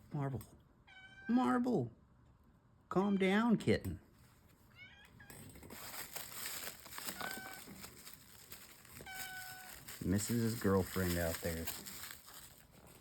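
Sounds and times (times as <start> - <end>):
cat meowing: 0.9 - 1.3, 4.7 - 5.4, 7.0 - 7.9, 9.0 - 9.9
packaging rustling: 5.6 - 13.0.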